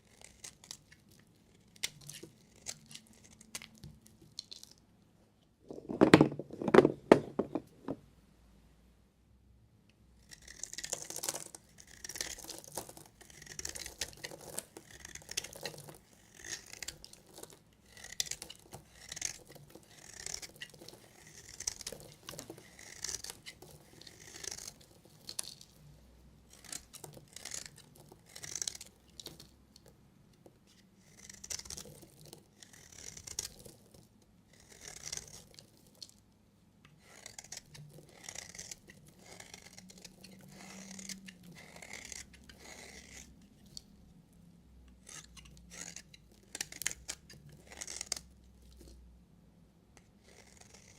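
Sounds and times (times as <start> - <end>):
knife scraping through soap: 10.2 - 25.8, 26.5 - 29.5, 30.7 - 35.9, 36.9 - 44.0, 44.9 - 49.0, 50.1 - 50.9.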